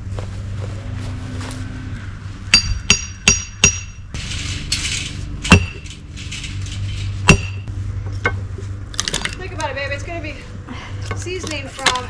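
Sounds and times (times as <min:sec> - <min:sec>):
hammer striking steel wedge: 0:02.6 - 0:04.0, 0:05.5 - 0:05.9, 0:07.2 - 0:07.7.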